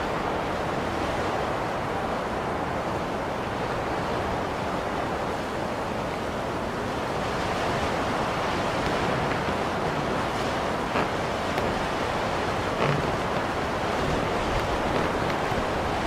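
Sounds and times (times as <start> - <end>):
blizzard wind blowing: 0.0 - 16.0.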